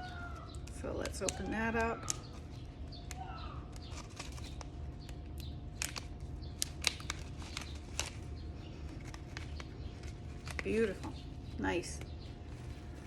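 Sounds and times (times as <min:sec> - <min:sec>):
faint bird chirps: 0:00.0 - 0:05.2
package crinkling: 0:00.0 - 0:13.0.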